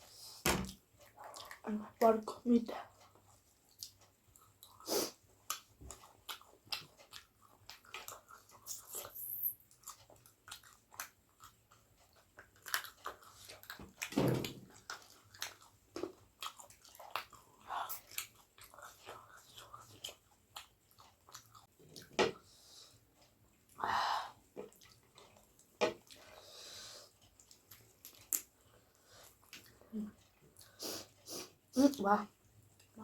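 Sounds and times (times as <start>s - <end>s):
chewing and biting: 3.0s - 22.1s, 24.6s - 26.4s.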